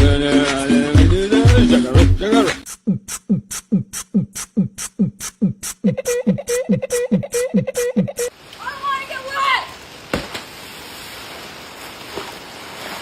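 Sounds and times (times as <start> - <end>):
song with steady beat: 0.0 - 8.3.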